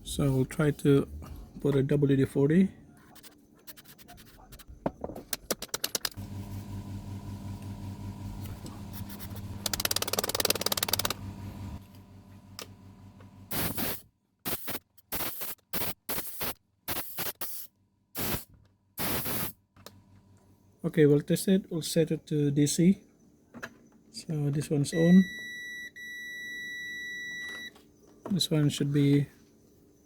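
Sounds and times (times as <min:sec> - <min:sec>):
electrical hum: 0:06.0 - 0:14.0
aerosol can spraying: 0:13.5 - 0:19.5.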